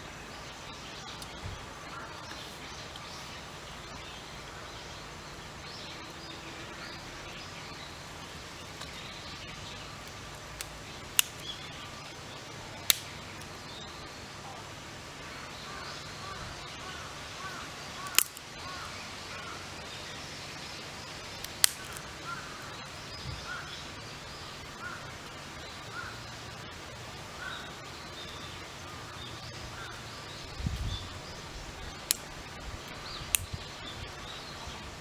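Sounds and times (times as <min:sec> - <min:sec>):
faint birds chirping: 0:00.0 - 0:35.0
low hiss of stove fire: 0:00.0 - 0:35.0
twig fire popping: 0:07.9 - 0:13.6, 0:17.5 - 0:18.8, 0:20.8 - 0:23.6, 0:30.2 - 0:35.0.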